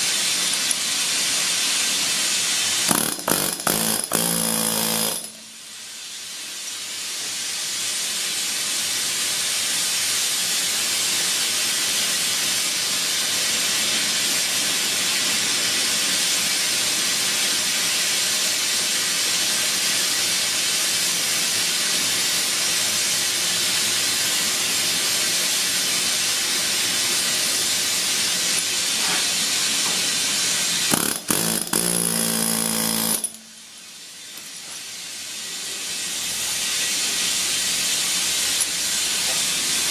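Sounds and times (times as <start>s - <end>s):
pneumatic air hammer rattling: 2.8s - 5.6s, 27.5s - 34.9s.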